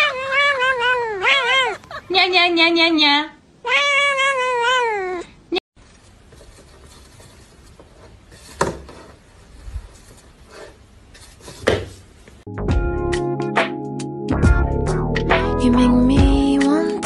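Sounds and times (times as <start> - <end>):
cat meowing: 0.0 - 2.1, 3.6 - 5.3.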